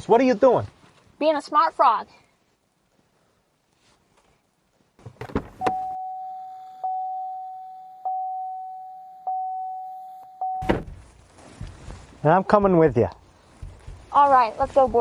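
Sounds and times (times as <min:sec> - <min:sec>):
car door clicks and knocks: 0:05.0 - 0:05.8, 0:10.6 - 0:12.0, 0:13.5 - 0:14.1
door-open warning chime: 0:05.4 - 0:10.8.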